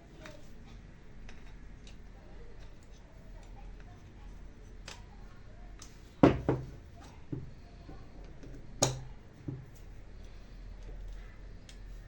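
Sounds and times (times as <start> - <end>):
hard objects knocking and tapping: 6.2 - 9.8.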